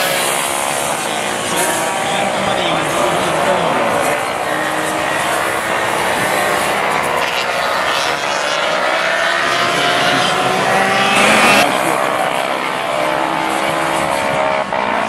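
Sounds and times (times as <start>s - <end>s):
racing motorcycles accelerating: 0.0s - 15.0s.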